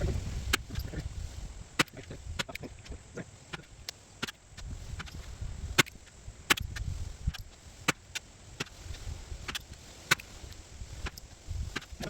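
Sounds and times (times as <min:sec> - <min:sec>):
wind rumbling on microphone: 0:00.0 - 0:12.0
sharp clicks: 0:01.8 - 0:08.8.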